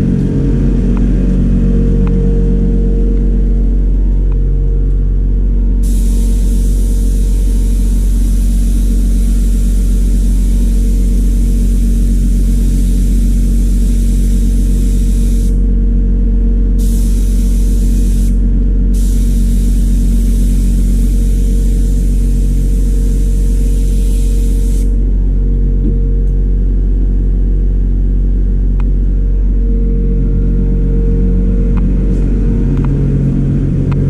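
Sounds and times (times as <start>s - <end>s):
motor and pump hum: 0.0s - 34.0s
water spray hissing: 5.8s - 15.6s, 16.8s - 18.4s, 19.0s - 24.9s.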